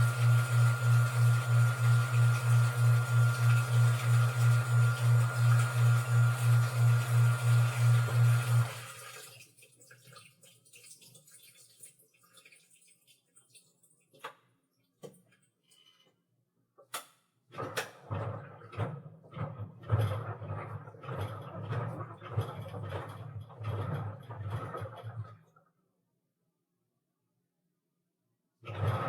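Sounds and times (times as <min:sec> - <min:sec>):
washing machine motor humming: 0:00.0 - 0:09.2
faint water trickling: 0:08.6 - 0:14.9.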